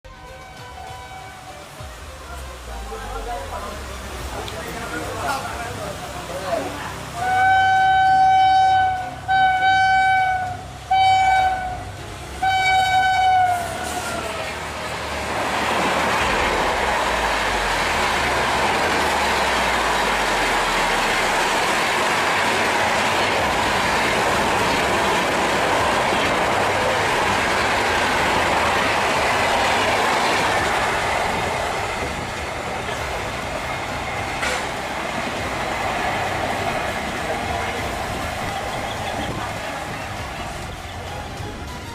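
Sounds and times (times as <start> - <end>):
locomotive horn blasts: 0.1 - 2.9, 7.2 - 14.3
train rushing past: 0.1 - 41.9.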